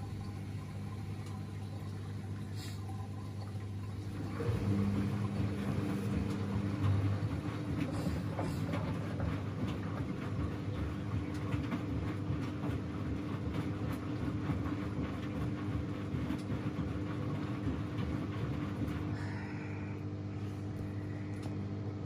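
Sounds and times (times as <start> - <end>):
washing machine motor hum: 0.0 - 22.0.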